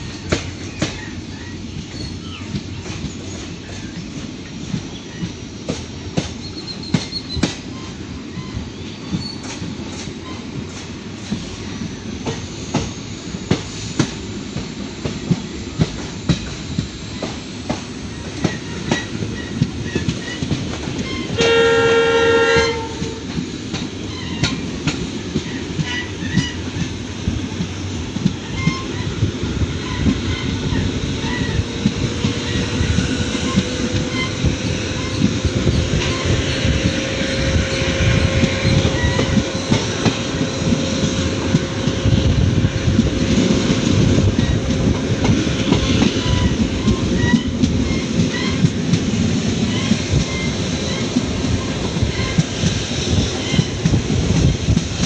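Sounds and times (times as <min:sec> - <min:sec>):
train wheels clickety-clack: 0:00.0 - 0:55.0
train horn: 0:21.0 - 0:23.4, 0:33.5 - 0:44.8.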